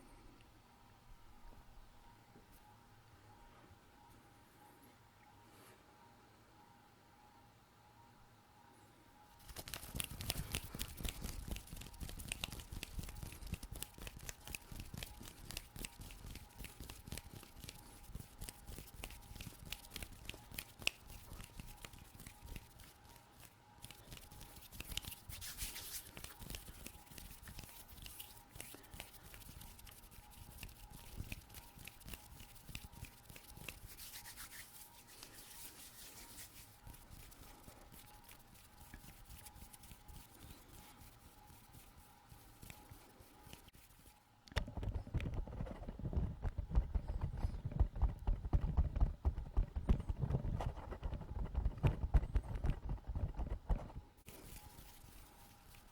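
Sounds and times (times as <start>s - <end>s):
faint steady hum: 0.0s - 55.9s
quick ticks and clicks: 9.4s - 22.8s
hands rubbing and scratching skin: 9.4s - 44.2s, 44.8s - 55.9s.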